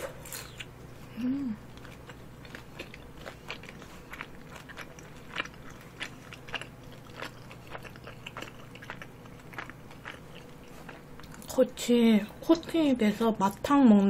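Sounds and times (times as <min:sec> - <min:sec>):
chewing food clicks: 0:02.5 - 0:11.5.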